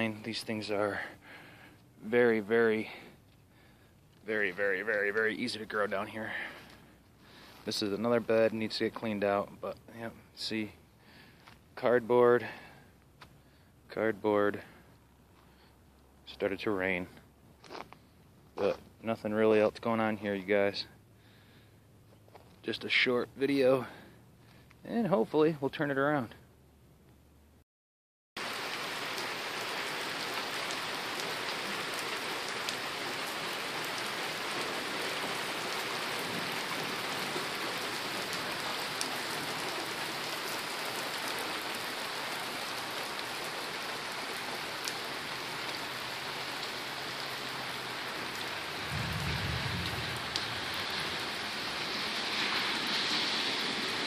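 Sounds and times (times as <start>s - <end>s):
steady rain: 0.0s - 17.2s, 28.4s - 54.0s
raindrop ticks: 48.8s - 51.4s
low rumble: 48.8s - 51.6s.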